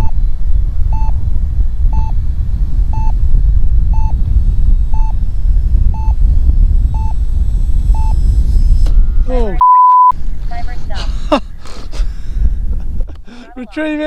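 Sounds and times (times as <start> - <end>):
wind rumble on microphone: 0.0 - 14.0
timer beeping: 0.9 - 1.2, 1.9 - 2.2, 2.9 - 3.2, 3.9 - 4.2, 4.9 - 5.2, 5.9 - 6.2, 6.9 - 7.2, 7.9 - 8.2.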